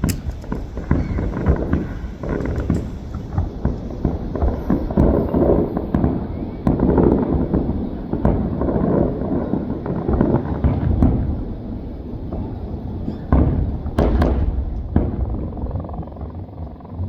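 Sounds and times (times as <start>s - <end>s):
fireworks booming and crackling: 0.0s - 17.0s.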